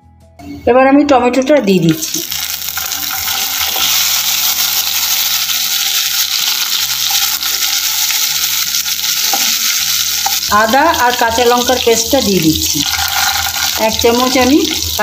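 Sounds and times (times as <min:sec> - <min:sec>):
tomatoes sizzling in hot oil: 0:01.9 - 0:15.0
wooden spatula stirring: 0:12.8 - 0:14.0.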